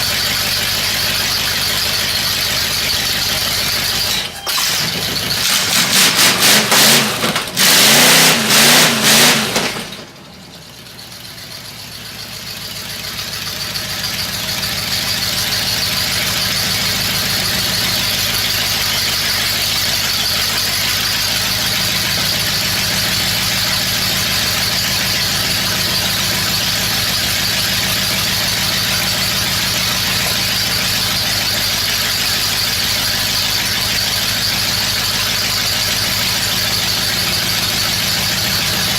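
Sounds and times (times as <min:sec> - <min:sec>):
car engine revving: 0:03.4 - 0:10.1, 0:20.6 - 0:38.9.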